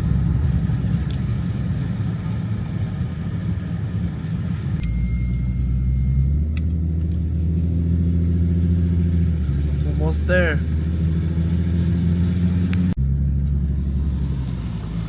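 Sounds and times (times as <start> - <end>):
car engine and road noise: 0.0 - 15.0
faint high whine: 4.8 - 6.6.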